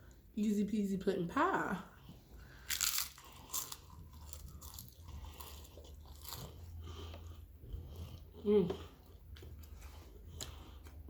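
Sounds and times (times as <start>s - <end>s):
person chewing: 2.0s - 11.0s
crunching crisp food: 2.4s - 7.4s.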